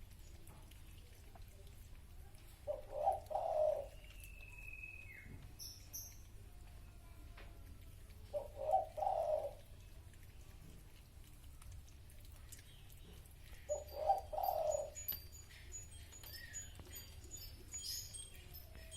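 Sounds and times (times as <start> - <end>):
dove cooing: 2.6 - 4.0, 8.3 - 9.7, 13.7 - 15.2
faint high bird chirps: 2.7 - 6.3, 13.6 - 18.9.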